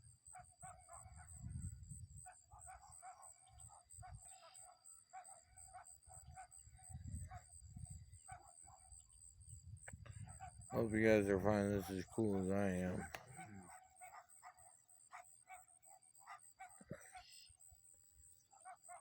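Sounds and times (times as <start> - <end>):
wind rumbling on microphone: 1.0 - 2.3, 6.1 - 13.5
short bird calls: 9.8 - 19.0.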